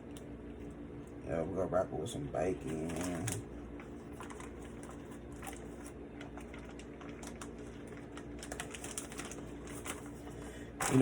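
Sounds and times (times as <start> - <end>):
hands handling meat and packaging: 2.6 - 11.0.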